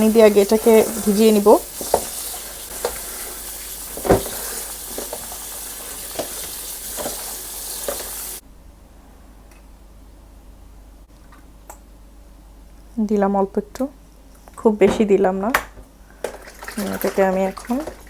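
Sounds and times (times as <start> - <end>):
tap water running: 0.0 - 8.4, 16.2 - 18.0
sponge knocks and squelches: 3.9 - 5.3.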